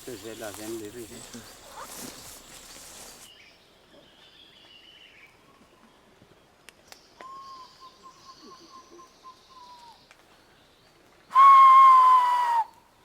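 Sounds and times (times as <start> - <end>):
long whistled notes: 11.3 - 12.8.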